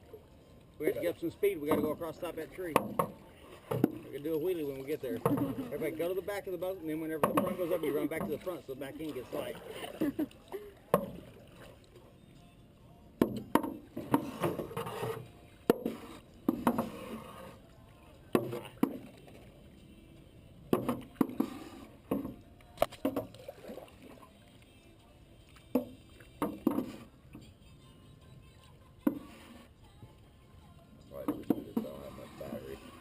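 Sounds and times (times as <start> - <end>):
paddles splashing water: 0.0 - 33.0
paddles knocking on boat: 1.5 - 4.2, 7.0 - 8.6, 13.2 - 14.9, 15.7 - 17.2, 18.3 - 19.2, 20.7 - 23.4, 25.7 - 27.1, 31.2 - 32.1.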